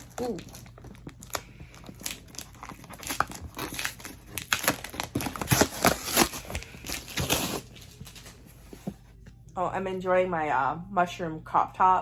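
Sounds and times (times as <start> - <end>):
paper and plastic crinkling: 0.0 - 9.1.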